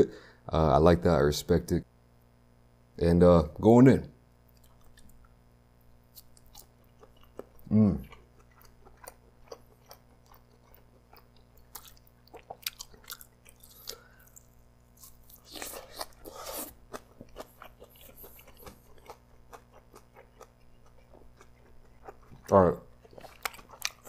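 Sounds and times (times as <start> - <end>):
mouth chewing: 4.5 - 5.3, 6.1 - 24.0.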